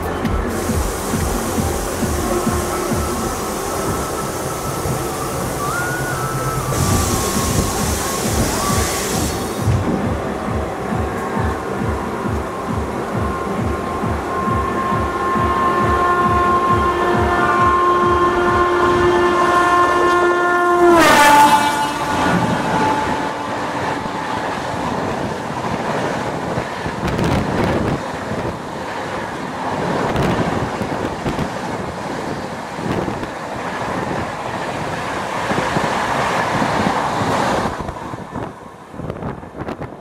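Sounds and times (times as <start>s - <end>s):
locomotive horn: 0.0s - 10.4s, 11.0s - 25.3s
train wheels clattering on rails: 0.0s - 19.1s.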